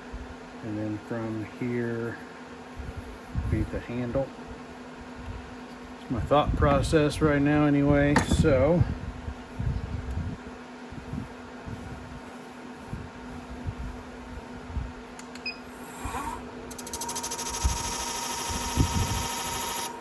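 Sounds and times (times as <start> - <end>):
wood lathe humming: 15.8 - 20.0.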